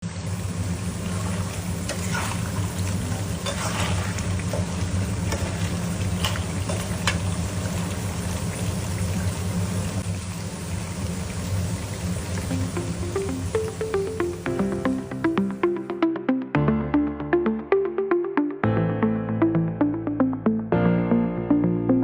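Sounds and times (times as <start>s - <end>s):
food sizzling in a pan: 0.0s - 14.5s.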